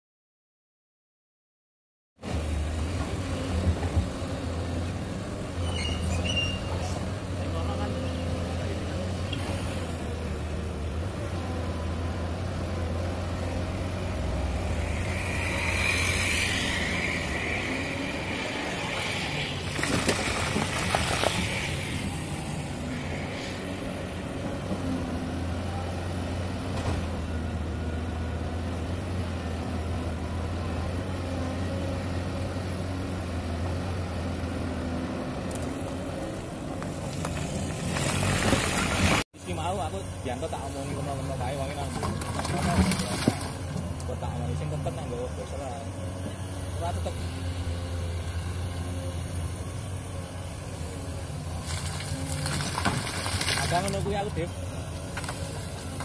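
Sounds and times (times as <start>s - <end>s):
excavator diesel engine running: 2.3s - 56.0s
high whine: 14.0s - 20.5s.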